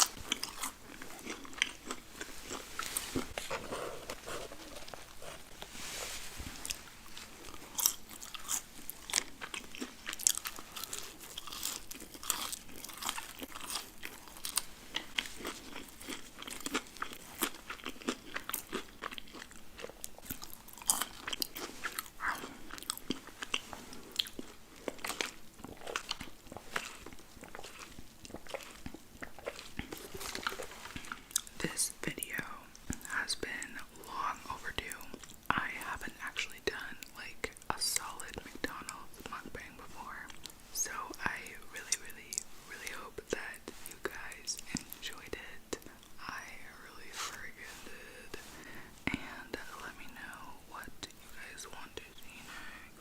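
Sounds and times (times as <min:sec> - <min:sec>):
crunchy bites and chewing: 0:00.0 - 0:03.6, 0:06.6 - 0:31.5.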